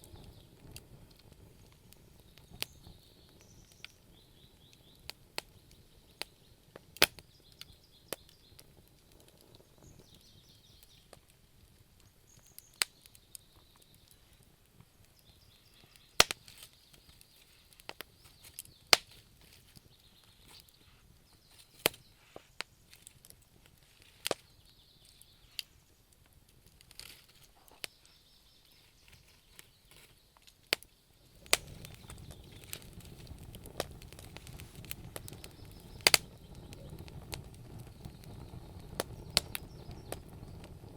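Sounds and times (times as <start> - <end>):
low rush of flame: 0.0 - 12.4, 31.1 - 40.9
wood fire crackling and popping: 0.0 - 40.9.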